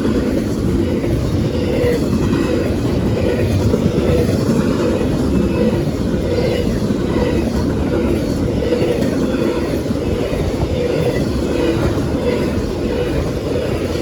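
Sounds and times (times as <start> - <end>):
freight train rumbling past: 0.0 - 14.0.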